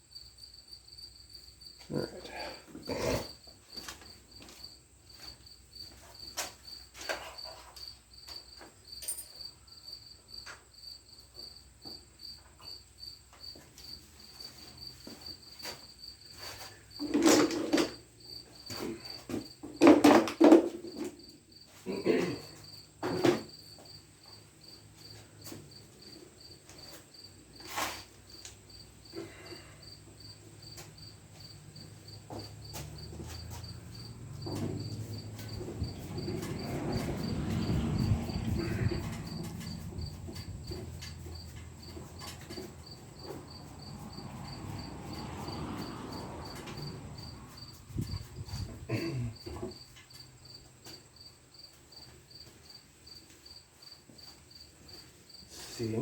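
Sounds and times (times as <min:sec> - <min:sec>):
cricket chirping: 0:00.0 - 0:56.0
knocks and clunks of handling: 0:17.0 - 0:18.0, 0:18.7 - 0:21.2, 0:22.3 - 0:23.6, 0:32.2 - 0:43.6.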